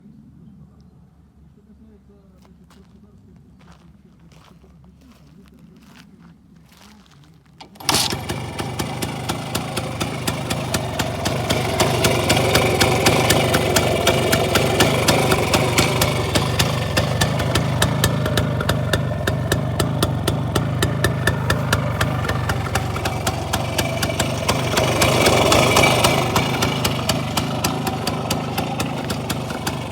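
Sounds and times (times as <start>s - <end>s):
two-stroke motorcycle engine running: 7.7s - 29.9s.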